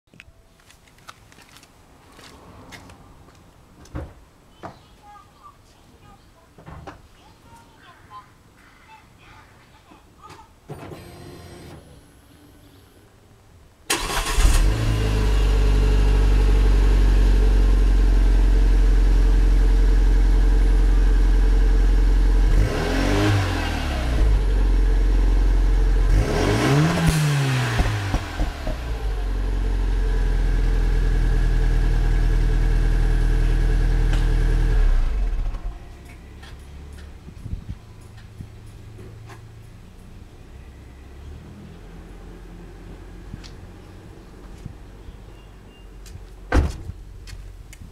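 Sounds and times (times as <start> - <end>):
car engine idling and revving: 14.0 - 44.8.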